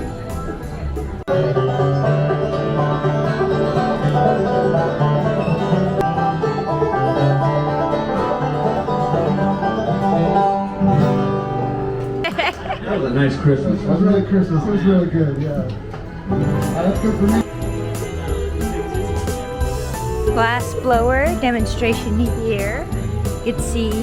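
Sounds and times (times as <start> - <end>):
bluegrass music with banjo: 0.0 - 14.0, 15.6 - 24.0.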